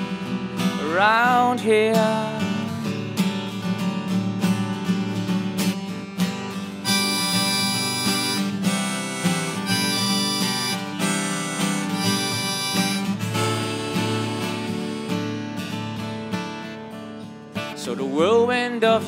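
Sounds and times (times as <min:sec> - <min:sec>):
acoustic guitar strumming: 0:00.0 - 0:19.0
harmonica long held notes: 0:06.8 - 0:15.8.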